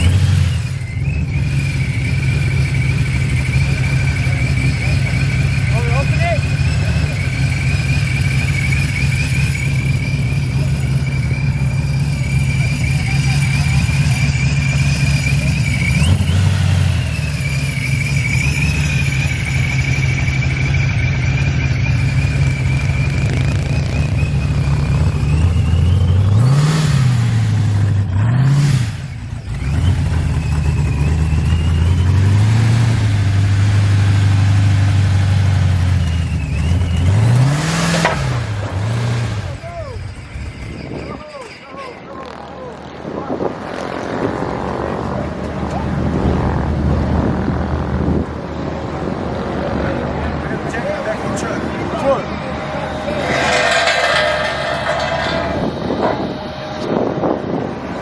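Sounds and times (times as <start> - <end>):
car engine idling and revving: 0.0 - 58.0
high wavering whine: 51.4 - 57.9.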